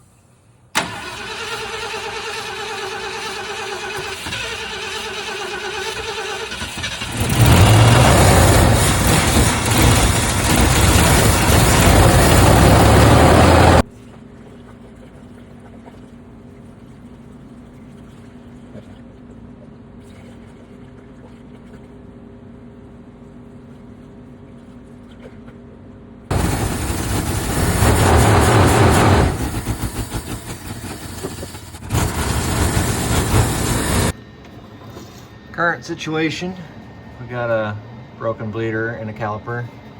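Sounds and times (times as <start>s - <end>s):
truck engine running: 0.8s - 13.9s, 26.3s - 34.2s.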